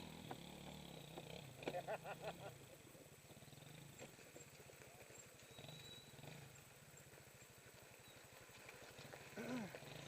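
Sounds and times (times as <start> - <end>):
distant dirt bike engine revving: 0.0 - 2.5.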